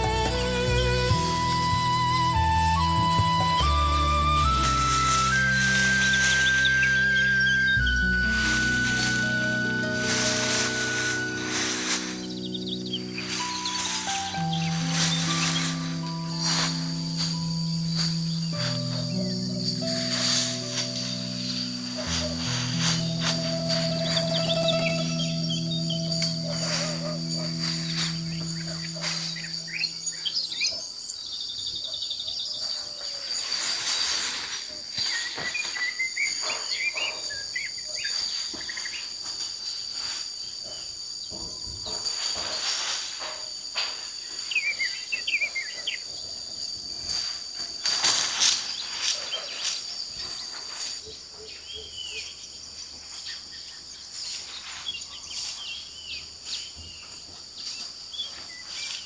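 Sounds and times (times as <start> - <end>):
rustling noise: 0.0 - 30.2, 33.2 - 35.8, 41.9 - 44.5, 47.0 - 51.1
birds chirping: 0.0 - 30.6
insects droning: 0.0 - 59.0.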